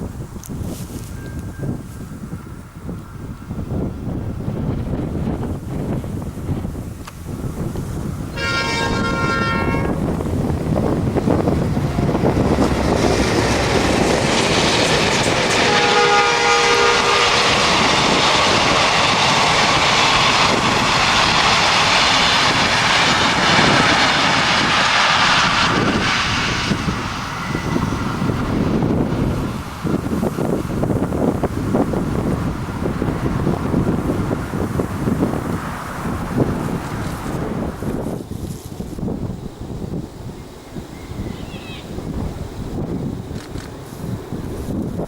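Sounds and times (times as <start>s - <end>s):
locomotive engine rumble: 0.0s - 45.0s
locomotive multi-tone horn: 8.3s - 10.0s, 15.2s - 18.3s
wheels clattering over rail joints: 10.0s - 16.9s.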